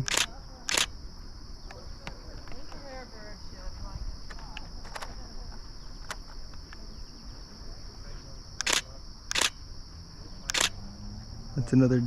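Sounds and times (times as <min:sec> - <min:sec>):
camera shutter bursts: 0:00.0 - 0:00.9, 0:08.6 - 0:09.6, 0:10.5 - 0:10.8
insects buzzing: 0:00.0 - 0:12.0.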